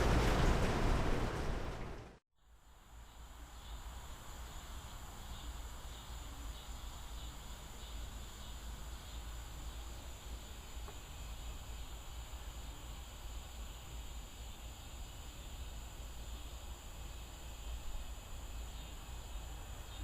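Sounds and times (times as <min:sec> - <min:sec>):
crickets buzzing: 0:02.4 - 0:20.0
insect chirps: 0:02.4 - 0:20.0.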